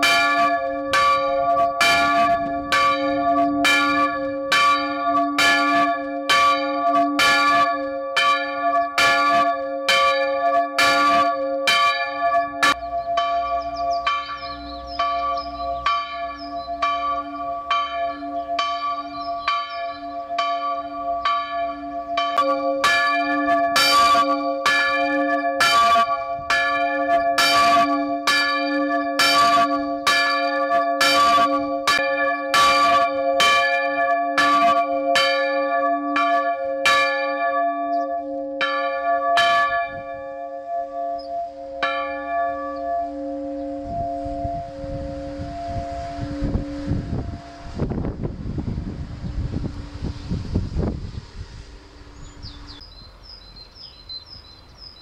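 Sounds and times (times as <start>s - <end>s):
church bell ringing: 0.0s - 47.9s
low rumble: 43.8s - 53.4s.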